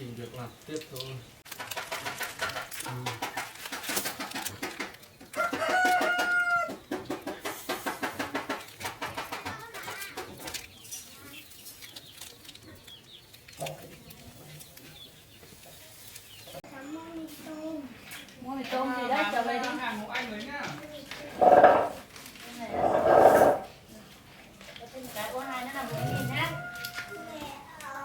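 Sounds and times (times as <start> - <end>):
rooster crowing: 5.4 - 6.7, 26.4 - 27.4
chickens clucking: 21.0 - 22.0.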